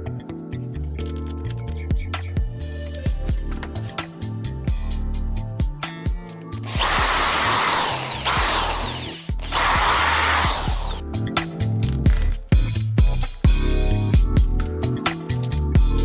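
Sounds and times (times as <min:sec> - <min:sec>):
background music with steady beat: 0:00.0 - 0:16.0
small power tool running: 0:06.7 - 0:11.0.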